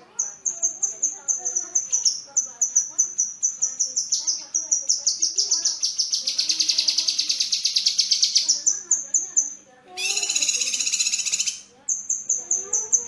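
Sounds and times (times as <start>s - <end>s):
songbird whistling and trilling: 2.8s - 13.0s.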